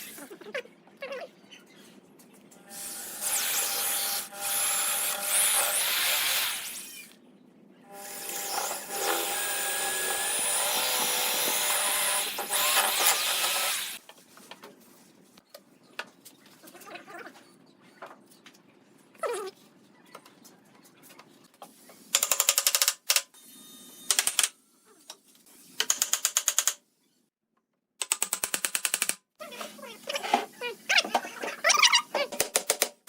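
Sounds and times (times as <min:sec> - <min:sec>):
power tool working wood: 0:02.7 - 0:07.1, 0:07.9 - 0:14.0.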